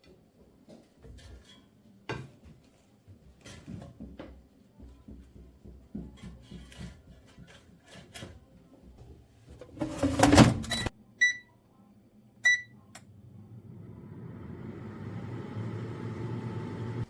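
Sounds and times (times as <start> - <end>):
electronic keypad beeps: 12.4 - 12.7
microwave oven humming: 12.5 - 17.0.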